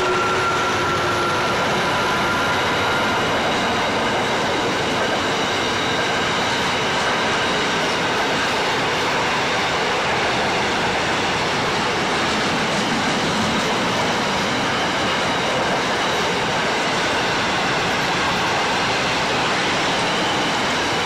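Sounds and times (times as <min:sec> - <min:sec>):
steel wheels on rails: 0:00.0 - 0:21.0.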